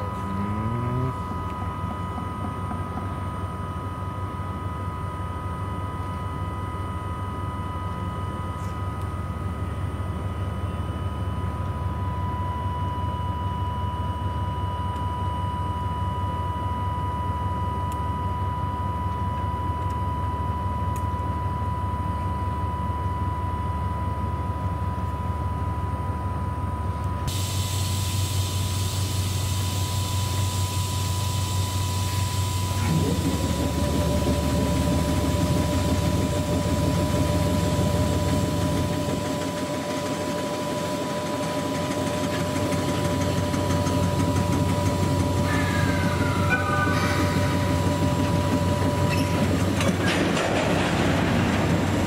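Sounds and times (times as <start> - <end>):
rail noise: 0.0 - 5.0, 27.3 - 52.0
steady high whine: 0.0 - 52.0.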